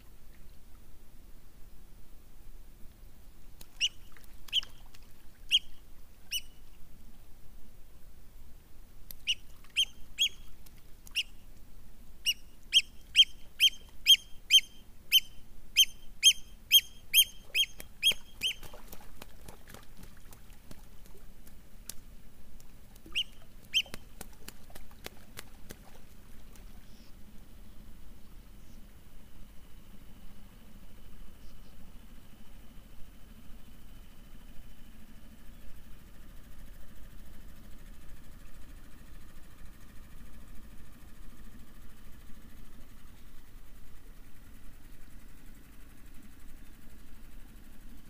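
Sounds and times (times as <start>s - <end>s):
small bird calling: 3.6s - 6.7s, 9.1s - 11.5s, 12.2s - 19.2s, 23.0s - 25.2s, 26.7s - 27.2s.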